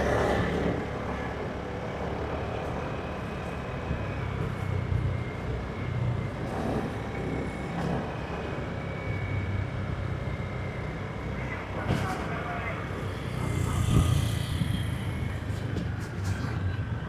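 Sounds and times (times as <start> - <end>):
wind and road noise: 11.7 - 17.0.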